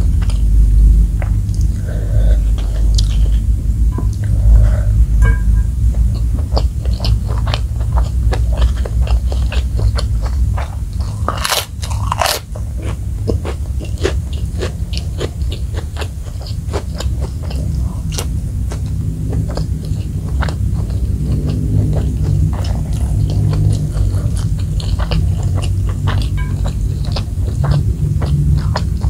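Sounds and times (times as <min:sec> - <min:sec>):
chewing crispy food: 0:00.0 - 0:04.4, 0:05.8 - 0:29.0
low hum: 0:00.0 - 0:29.0.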